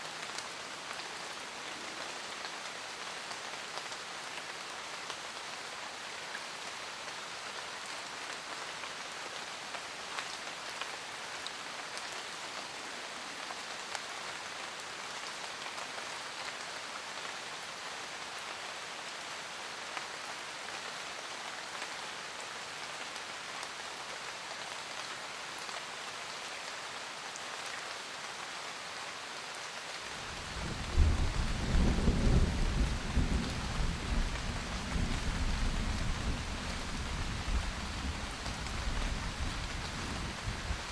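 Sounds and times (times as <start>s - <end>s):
rain pattering: 27.2s - 40.9s
deep rumble of thunder: 30.3s - 40.9s.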